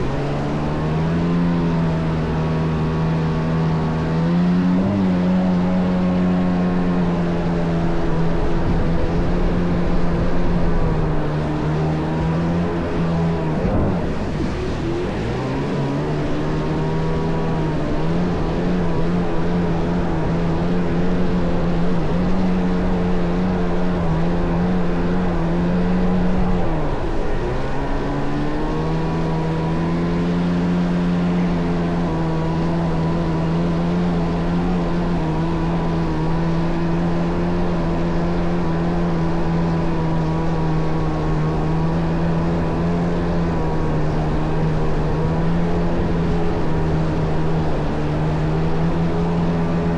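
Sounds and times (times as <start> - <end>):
jet ski engine running: 0.0 - 49.9.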